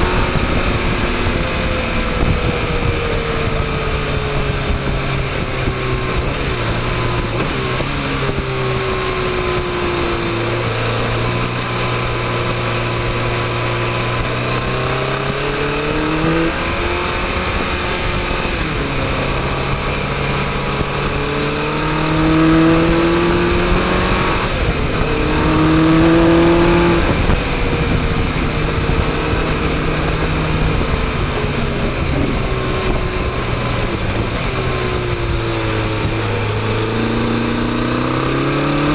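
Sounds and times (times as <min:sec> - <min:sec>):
wind rushing: 0:00.0 - 0:11.6, 0:12.2 - 0:38.9
motorcycle engine revving: 0:00.0 - 0:38.9.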